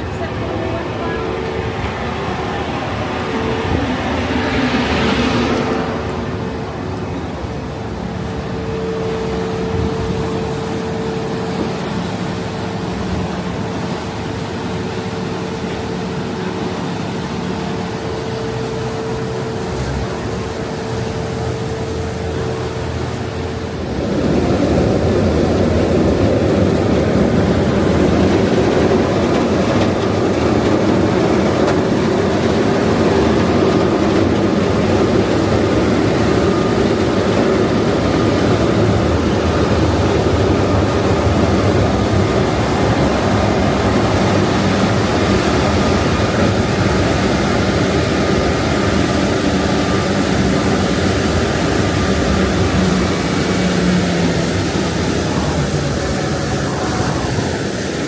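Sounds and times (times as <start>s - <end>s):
boat engines droning: 0.0s - 58.0s.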